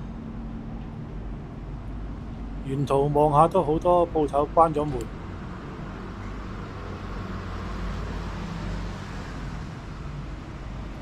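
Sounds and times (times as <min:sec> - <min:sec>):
traffic rumble: 0:01.8 - 0:09.0.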